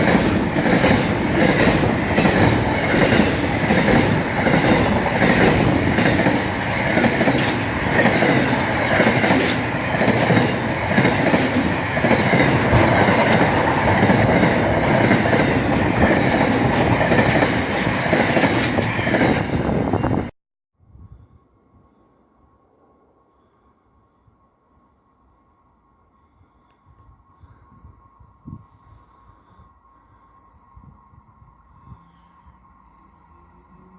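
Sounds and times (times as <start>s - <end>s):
train rumbling on rails: 0.0s - 20.3s.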